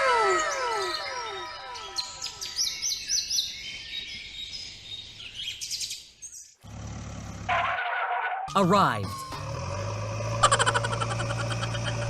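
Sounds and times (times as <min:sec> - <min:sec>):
bird chirping: 0:00.3 - 0:06.6.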